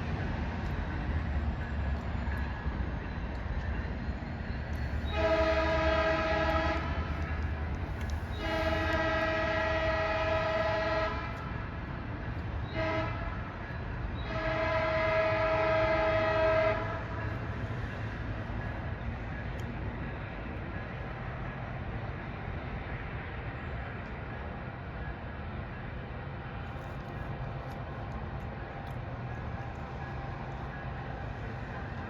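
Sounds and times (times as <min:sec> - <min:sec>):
train rumbling: 0:00.0 - 0:32.0
locomotive air horn blasts: 0:05.0 - 0:07.2, 0:08.3 - 0:11.6, 0:12.7 - 0:13.5, 0:14.2 - 0:17.2.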